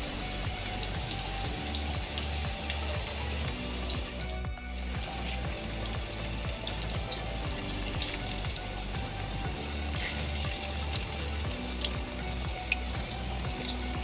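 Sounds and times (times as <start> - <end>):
background music: 0.0 - 14.0
food sizzling in oil: 0.0 - 14.0.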